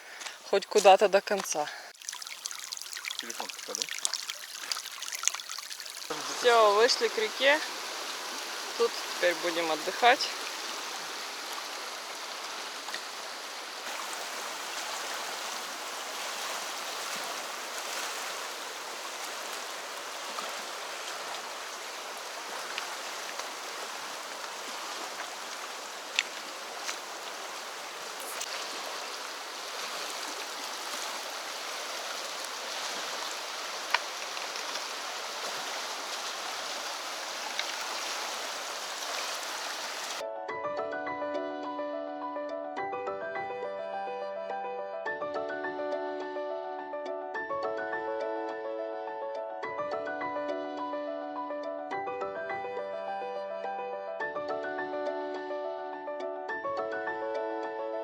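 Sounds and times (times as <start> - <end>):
river rushing over rocks: 4.8 - 40.2.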